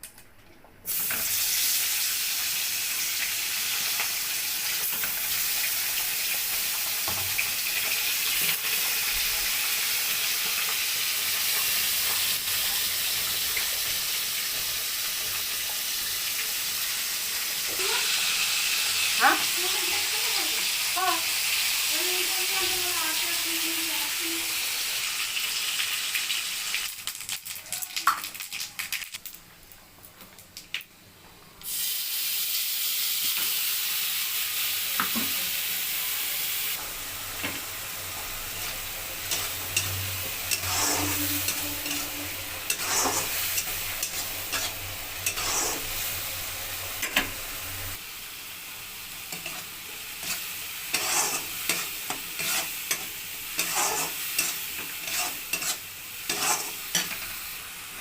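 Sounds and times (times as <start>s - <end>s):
food sizzling in a pan: 0.9s - 31.0s, 31.6s - 58.0s
utensil scraping pan: 39.3s - 46.0s, 49.3s - 57.3s.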